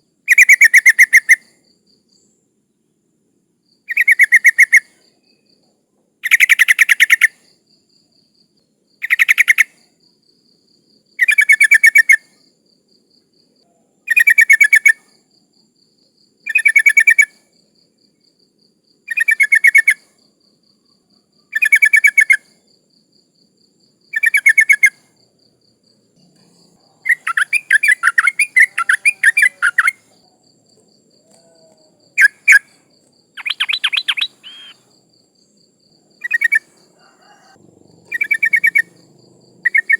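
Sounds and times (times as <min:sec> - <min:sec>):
insect trill: 0:00.0 - 0:39.9
bulbul calling: 0:27.0 - 0:30.1, 0:32.2 - 0:32.7, 0:33.4 - 0:34.9, 0:36.2 - 0:36.7, 0:37.3 - 0:39.9.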